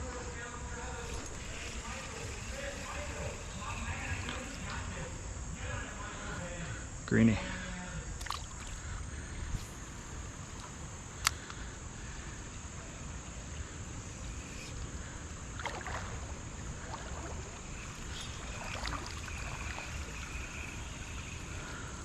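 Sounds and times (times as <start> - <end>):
insects droning: 0.0 - 22.0
creek water sloshing: 8.2 - 9.0, 14.3 - 22.0.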